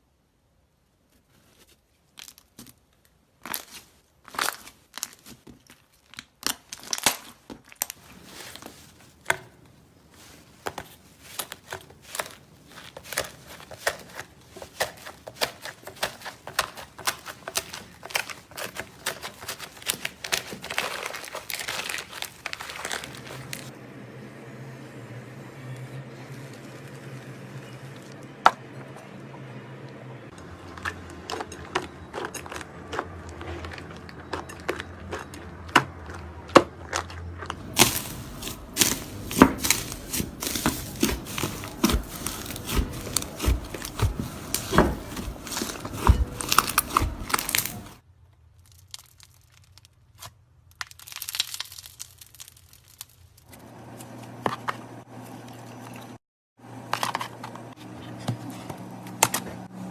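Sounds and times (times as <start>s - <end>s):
slime crackling and popping: 3.4s - 8.4s, 10.2s - 23.7s, 36.9s - 48.0s, 48.6s - 53.5s.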